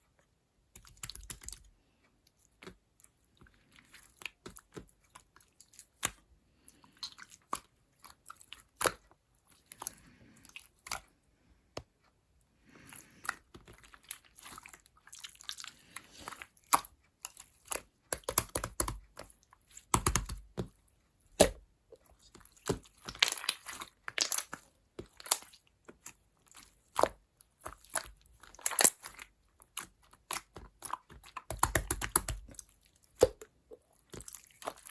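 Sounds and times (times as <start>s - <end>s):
crunching and crisp clicks: 13.1s - 34.9s.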